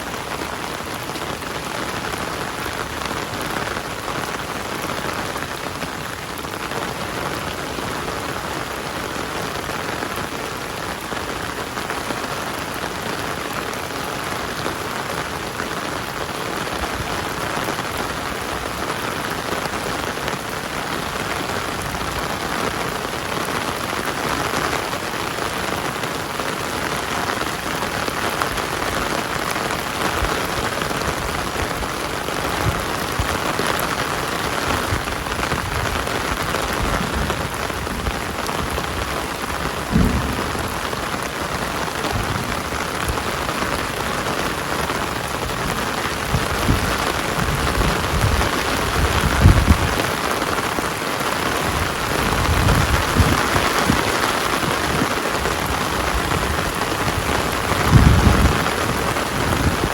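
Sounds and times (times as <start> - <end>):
heavy rain falling: 0.0 - 59.9
low rumbles: 36.8 - 44.0.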